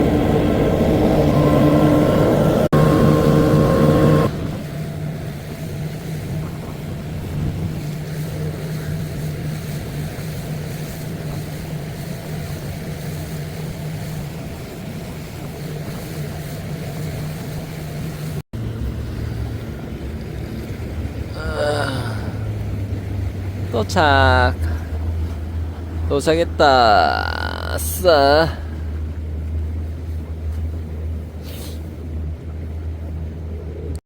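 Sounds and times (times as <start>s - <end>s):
boat engine humming: 0.0s - 34.0s.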